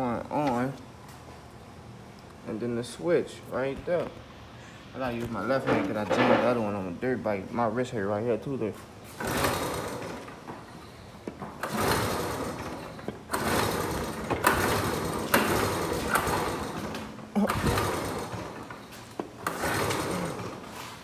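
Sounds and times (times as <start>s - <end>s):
dirt bike starter cranking engine: 9.0s - 21.0s.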